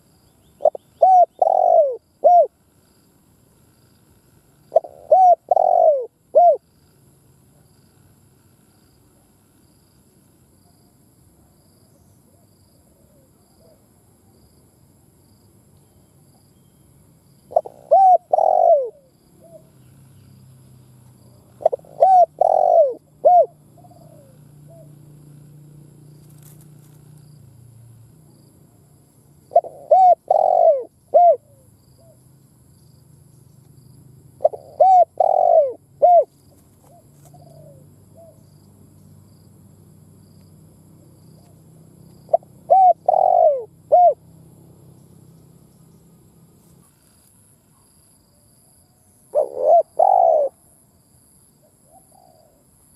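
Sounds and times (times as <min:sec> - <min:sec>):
dove cooing: 0:00.6 - 0:02.6, 0:04.6 - 0:06.7, 0:17.5 - 0:19.7, 0:21.3 - 0:25.0, 0:29.5 - 0:32.2, 0:34.4 - 0:38.5, 0:42.2 - 0:44.2, 0:49.3 - 0:50.6, 0:51.6 - 0:52.6.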